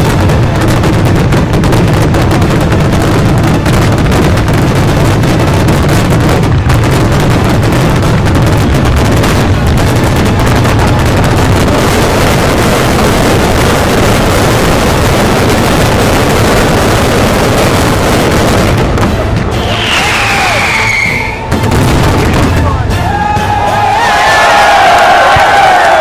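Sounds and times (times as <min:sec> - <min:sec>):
fireworks barrage: 0:00.0 - 0:26.0.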